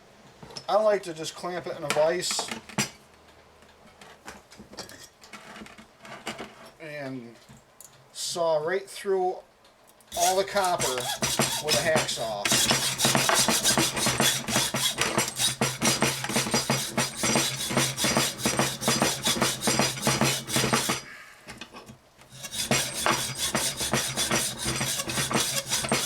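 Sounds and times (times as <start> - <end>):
hacksaw cutting copper: 10.1 - 26.0.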